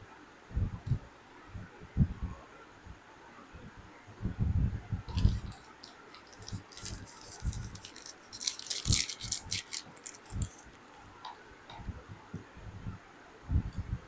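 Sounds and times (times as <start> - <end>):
handling clicks and crinkling rustles: 5.1 - 11.9.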